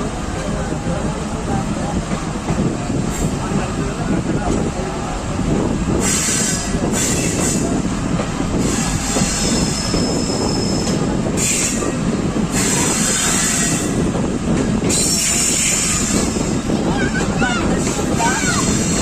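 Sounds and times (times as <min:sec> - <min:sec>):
train rumbling on rails: 0:00.0 - 0:19.0
high wheel squeal: 0:08.6 - 0:12.0, 0:14.9 - 0:19.0.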